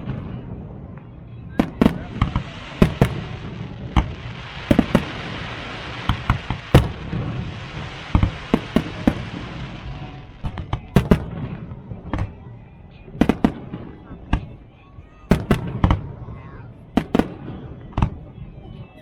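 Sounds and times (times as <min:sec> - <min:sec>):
fireworks bangs and pops: 0:00.0 - 0:12.4, 0:13.2 - 0:14.5, 0:15.3 - 0:16.2, 0:17.0 - 0:18.3
fireworks hiss: 0:01.6 - 0:11.3.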